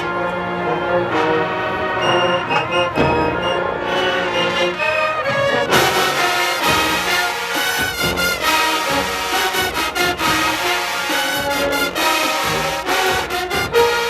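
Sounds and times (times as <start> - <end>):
marching band brass chords: 0.0 - 14.0
percussion hits: 1.9 - 14.0.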